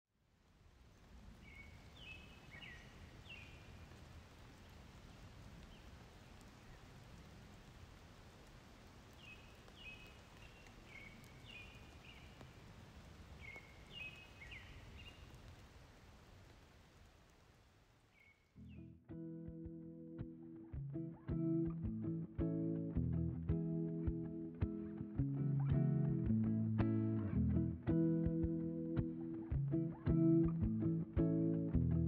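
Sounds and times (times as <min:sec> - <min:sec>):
small bird chirping: 0:13.4 - 0:15.3
faint low rumble: 0:18.6 - 0:32.0.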